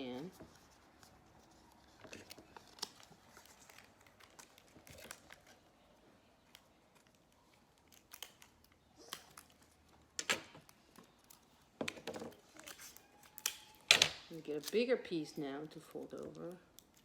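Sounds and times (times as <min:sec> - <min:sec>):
paper rustling: 0:00.2 - 0:05.7
paper crinkling: 0:00.2 - 0:14.9.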